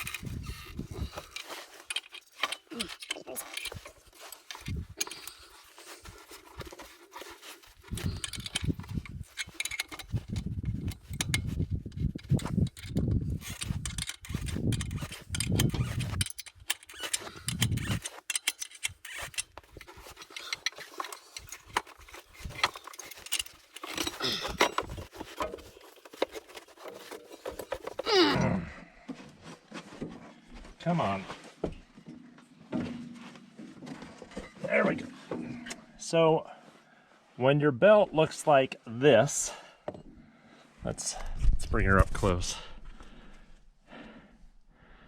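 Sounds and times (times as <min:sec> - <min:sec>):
tools and metal parts clattering: 0:00.0 - 0:28.5, 0:32.1 - 0:35.8.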